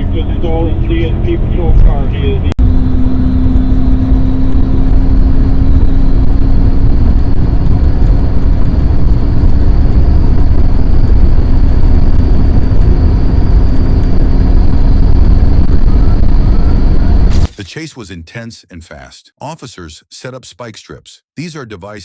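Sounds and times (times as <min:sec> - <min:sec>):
car engine revving: 0:00.0 - 0:17.5
road noise: 0:00.0 - 0:17.6.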